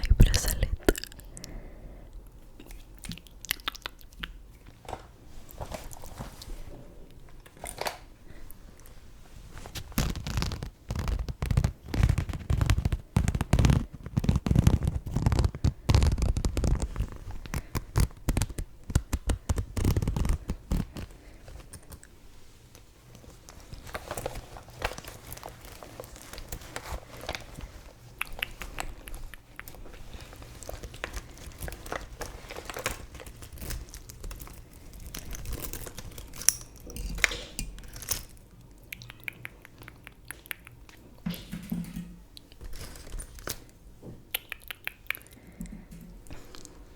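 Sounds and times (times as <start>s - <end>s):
scratching on makeup items: 9.5s - 22.1s, 22.7s - 38.3s
packaging crinkling: 9.6s - 22.1s, 22.7s - 38.5s, 41.4s - 43.8s.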